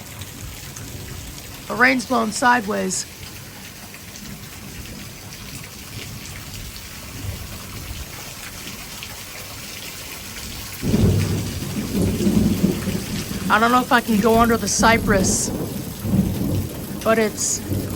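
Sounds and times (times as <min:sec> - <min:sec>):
heavy rain: 0:00.0 - 0:17.9
thunder rumble: 0:10.8 - 0:17.9.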